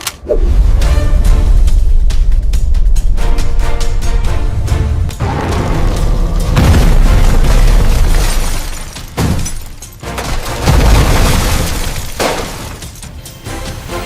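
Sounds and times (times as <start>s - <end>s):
dramatic soundtrack music: 0.0s - 14.0s
heavy booming impacts: 0.4s - 9.6s
crashing shattering effects: 5.2s - 13.1s.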